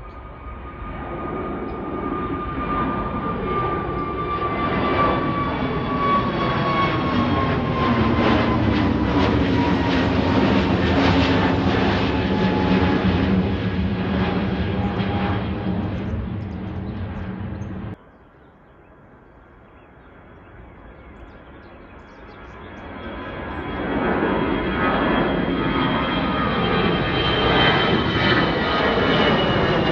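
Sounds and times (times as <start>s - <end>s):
high jet whine: 0.0s - 18.0s
airliner engines roaring: 0.0s - 29.9s.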